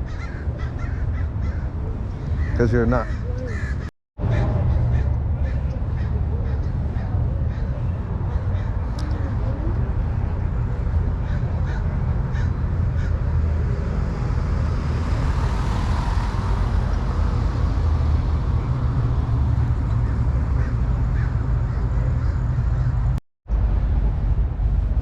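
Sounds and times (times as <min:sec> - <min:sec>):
crow-like caws: 0:00.0 - 0:08.9, 0:11.2 - 0:13.4, 0:19.9 - 0:23.1
steady low rumble: 0:16.7 - 0:25.0.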